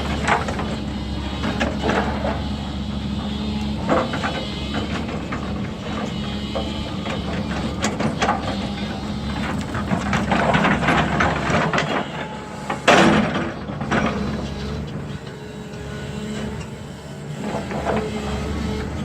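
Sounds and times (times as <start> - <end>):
diesel machine running: 0.0 - 19.0
metal and rock clanks: 9.4 - 14.3.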